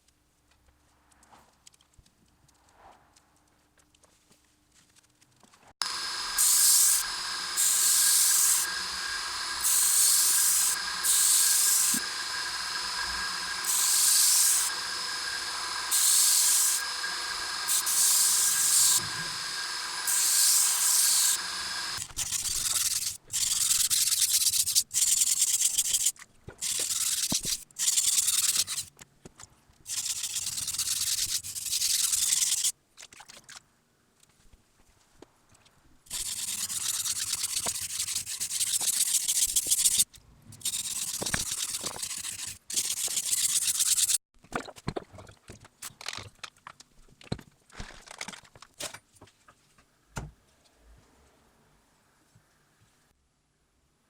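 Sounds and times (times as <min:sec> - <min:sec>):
sanding machine humming: 0:05.8 - 0:22.0
knife blade sanding: 0:06.4 - 0:28.9, 0:29.9 - 0:32.7, 0:36.1 - 0:40.0, 0:40.6 - 0:44.2.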